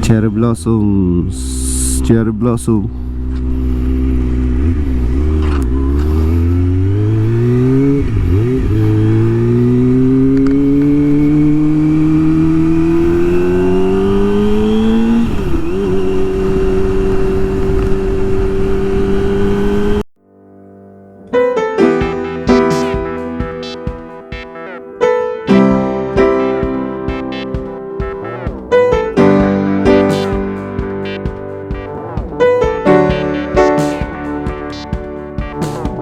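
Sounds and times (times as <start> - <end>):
motorcycle engine accelerating: 3.0 - 20.0, 25.5 - 36.0.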